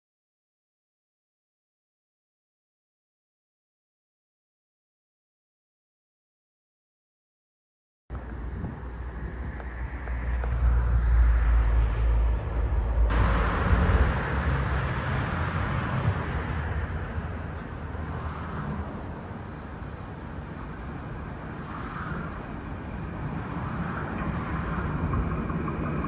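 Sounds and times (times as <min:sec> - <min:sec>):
train passing rumble: 0:08.1 - 0:26.0.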